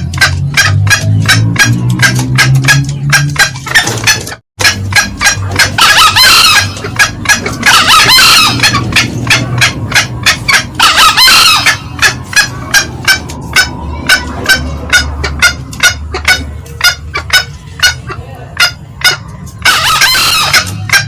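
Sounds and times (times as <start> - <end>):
junglefowl long calls: 4.7 - 18.0, 18.6 - 21.0.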